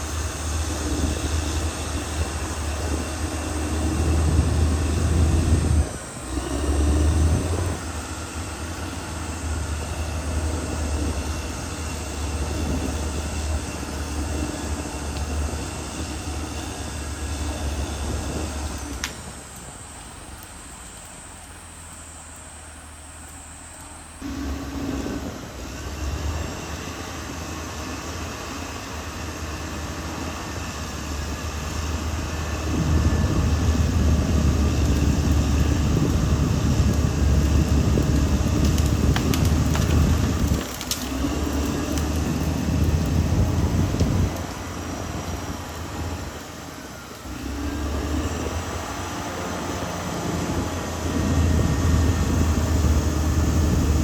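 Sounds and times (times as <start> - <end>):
bulldozer diesel engine running: 0.0 - 54.0
sharp cracks: 38.0 - 43.2.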